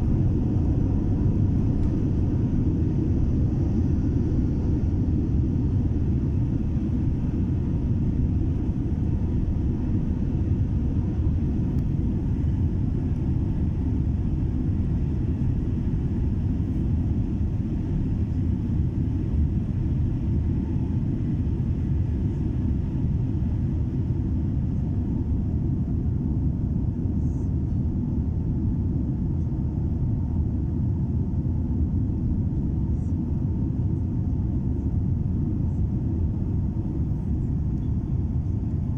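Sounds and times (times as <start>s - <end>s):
jet airliner taking off: 0.0s - 27.2s.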